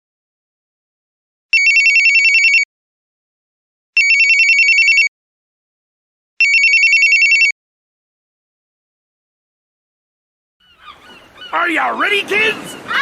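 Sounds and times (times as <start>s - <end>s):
telephone ringing: 1.5s - 2.7s, 4.0s - 5.1s, 6.4s - 7.5s.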